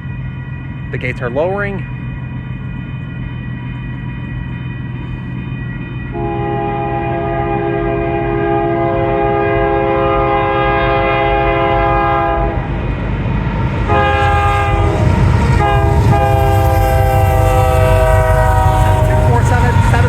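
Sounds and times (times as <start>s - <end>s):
locomotive rumble: 0.0s - 20.0s
locomotive air horn blasts: 6.1s - 12.7s, 13.8s - 20.0s.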